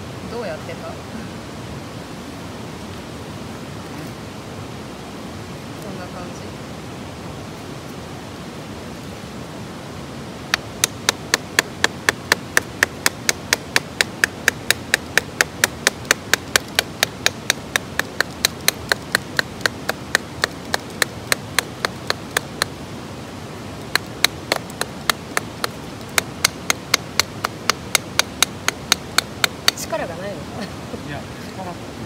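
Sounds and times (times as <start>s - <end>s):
stick knocking on knife blade: 10.5s - 22.7s, 23.9s - 29.8s.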